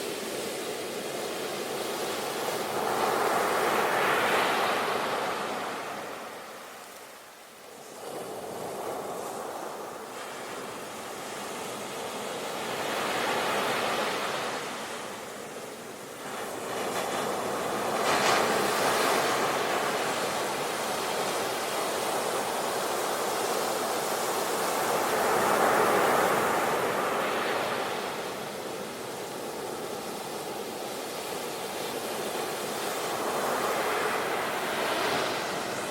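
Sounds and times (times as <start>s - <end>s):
sea waves breaking on shore: 0.0s - 35.9s.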